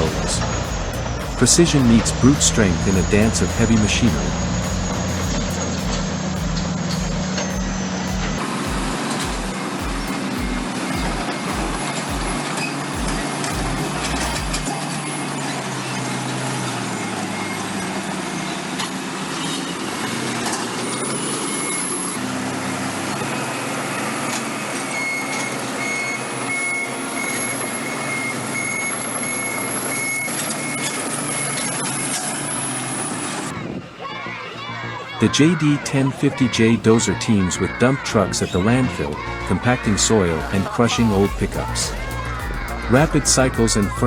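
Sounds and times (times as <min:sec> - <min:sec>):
reversing alarm beeping: 0:00.0 - 0:22.3, 0:24.4 - 0:33.5
bulldozers running under load: 0:00.0 - 0:33.5.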